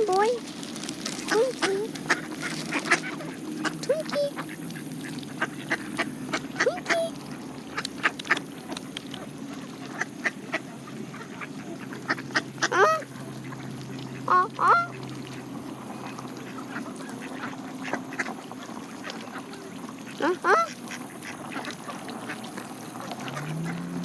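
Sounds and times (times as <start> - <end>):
bills pecking at ground: 0.0 - 24.0
geese honking: 1.2 - 8.4, 9.8 - 15.1, 20.0 - 23.9.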